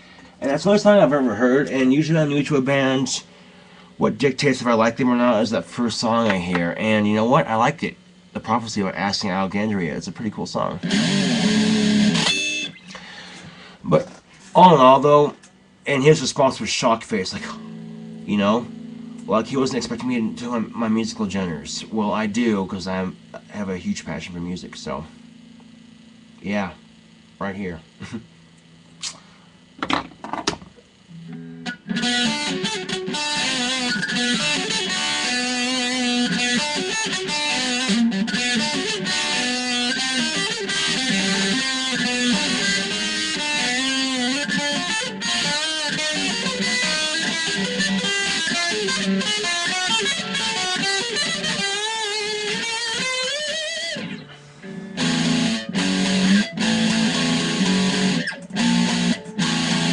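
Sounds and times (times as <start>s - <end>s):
heavy low guitar riff: 0.4s - 7.7s, 10.8s - 13.1s, 13.9s - 29.1s, 31.1s - 59.9s
electric guitar lead with string bends: 10.8s - 13.2s, 16.5s - 27.4s, 31.0s - 59.9s.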